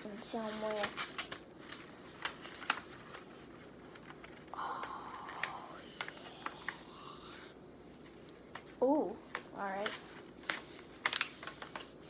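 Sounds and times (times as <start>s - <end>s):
paper rustling: 0.0s - 4.5s, 7.8s - 12.0s.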